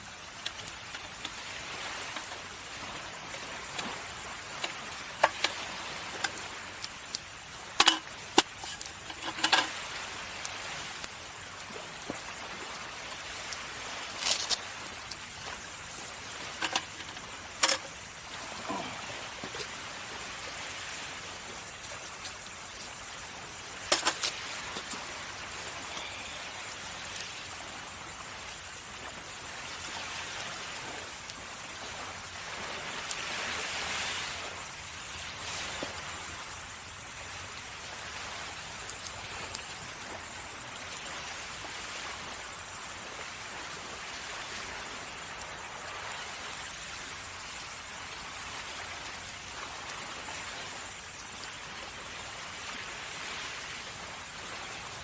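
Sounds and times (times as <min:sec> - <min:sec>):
sea waves on shore: 0:00.0 - 0:55.0
very high hiss: 0:00.0 - 0:55.0
wood fire crackling and popping: 0:00.1 - 0:10.4, 0:11.0 - 0:18.4, 0:21.8 - 0:26.2.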